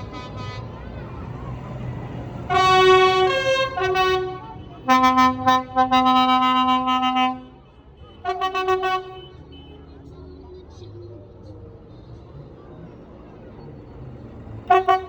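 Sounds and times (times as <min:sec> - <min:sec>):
vehicle horn playing a tune: 0:00.0 - 0:00.9, 0:02.5 - 0:09.8, 0:14.7 - 0:15.0.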